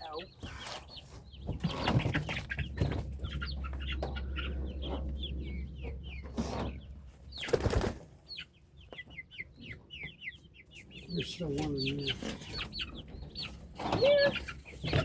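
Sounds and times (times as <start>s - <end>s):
chicks peeping: 0.0s - 15.0s
wing flapping: 7.4s - 8.1s.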